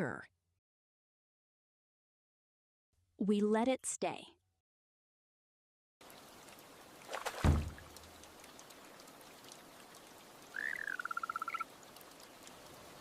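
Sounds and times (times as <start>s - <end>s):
steady rain: 6.0s - 13.0s
loud splashing thump: 7.2s - 8.0s
small animal chirping and trilling: 10.5s - 11.7s.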